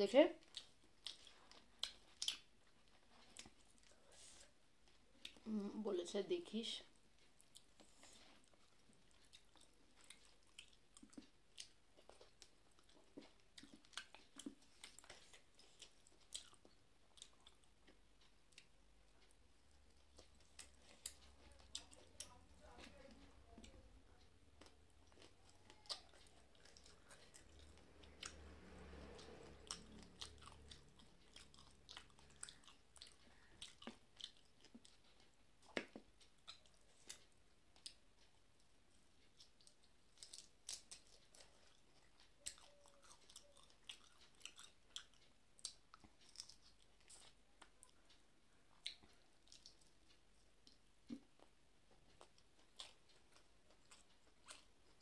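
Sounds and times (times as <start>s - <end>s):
person chewing: 0.4s - 5.6s, 7.0s - 55.0s
mouth clicks and lip smacks: 29.2s - 55.0s.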